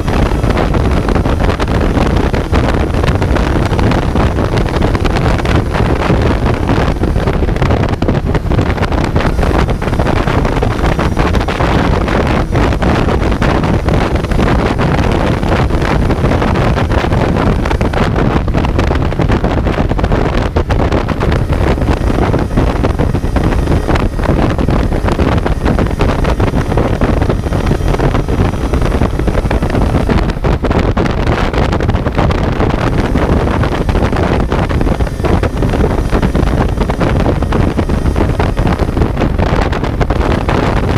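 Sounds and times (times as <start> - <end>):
motorcycle engine running: 0.0 - 40.9
wind buffeting on microphone: 0.0 - 40.9.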